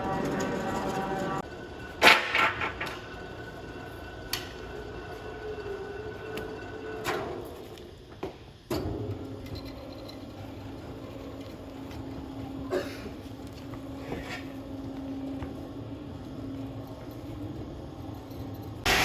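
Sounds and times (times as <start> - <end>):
machine humming: 0.0 - 8.1.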